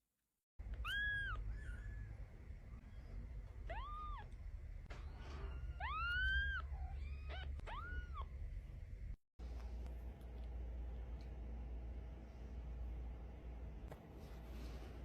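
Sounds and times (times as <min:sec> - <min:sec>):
cat chirps: 0:00.7 - 0:02.2, 0:05.4 - 0:08.3
cat meowing: 0:03.6 - 0:04.4, 0:05.5 - 0:08.3.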